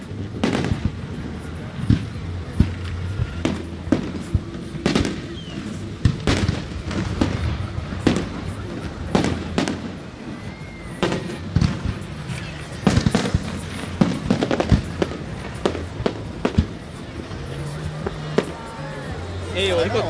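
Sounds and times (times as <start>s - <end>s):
fireworks shells bursting: 0.0s - 20.0s.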